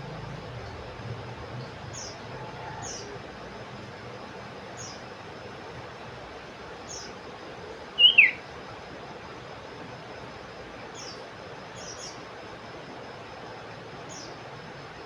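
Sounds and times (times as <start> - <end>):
faint high bird chirps: 4.8 - 5.1, 6.8 - 7.2, 7.9 - 8.4, 10.9 - 12.2, 14.1 - 14.4
bird downslurred call: 8.0 - 8.4.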